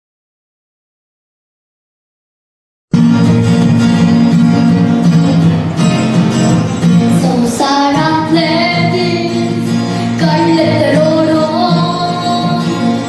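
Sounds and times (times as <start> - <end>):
instrumental accompaniment: 2.9 - 13.0
girl singing: 7.1 - 13.0.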